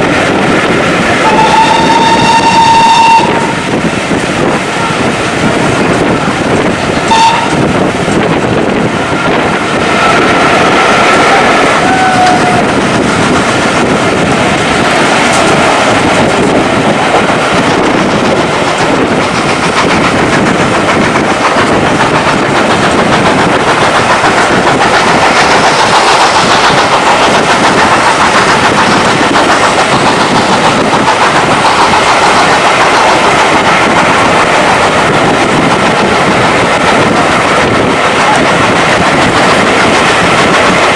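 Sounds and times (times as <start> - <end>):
train wheels clattering on track: 0.0 - 40.9.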